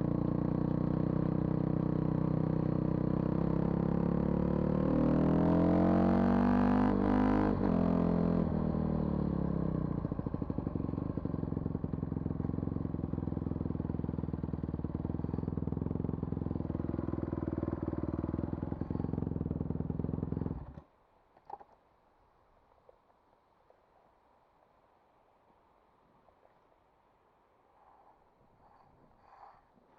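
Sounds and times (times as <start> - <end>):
vehicle engine idling: 9.9 - 20.8.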